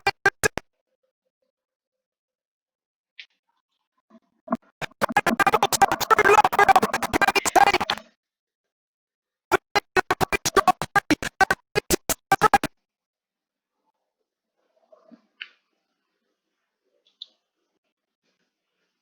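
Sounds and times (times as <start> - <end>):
glitchy chopped audio: 0.0 - 0.6, 4.5 - 8.0, 9.5 - 12.7.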